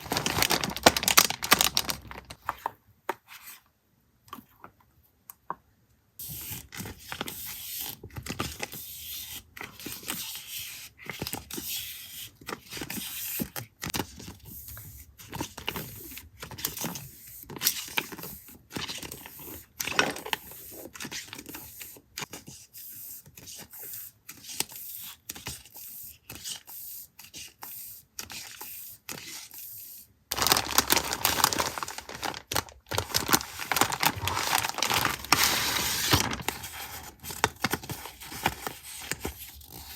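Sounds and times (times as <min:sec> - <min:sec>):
paper rustling and tearing: 0:00.0 - 0:02.4, 0:30.3 - 0:39.9.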